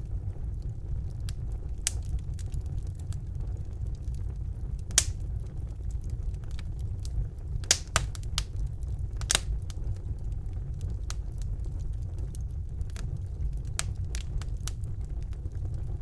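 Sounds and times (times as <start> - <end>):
wood fire burning: 0.0 - 16.0.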